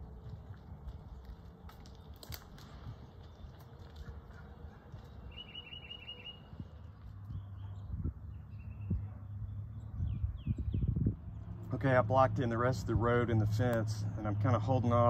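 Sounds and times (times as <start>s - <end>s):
steady low rumble: 0.0s - 15.0s
songbird trill: 2.8s - 11.5s
bird chirps: 3.2s - 10.9s.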